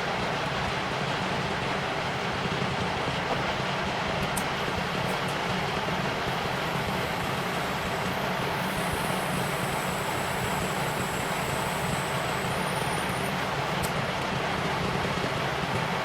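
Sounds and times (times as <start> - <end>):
machine running noise: 4.4 - 16.0
faint high whine: 6.1 - 14.2.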